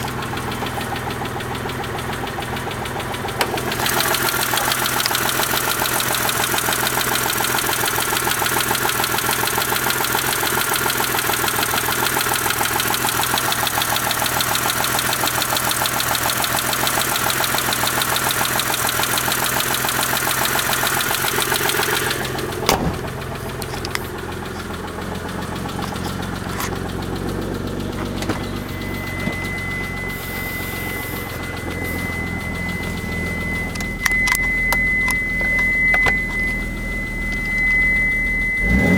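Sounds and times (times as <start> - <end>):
car engine idling: 0.0 - 38.9
fast even engine ticking: 0.0 - 38.9
steady high-pitched tone: 28.1 - 38.9.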